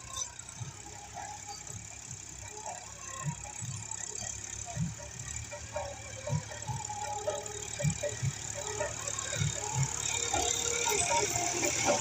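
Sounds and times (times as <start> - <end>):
tractor engine humming: 0.0 - 12.0.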